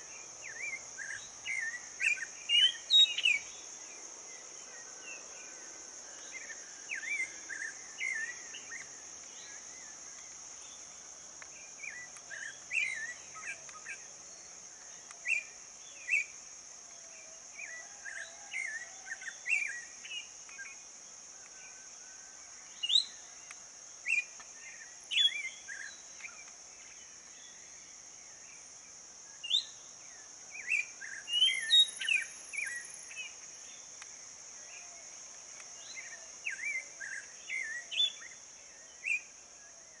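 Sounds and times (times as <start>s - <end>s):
songbirds chirping and singing: 22.4s - 33.9s.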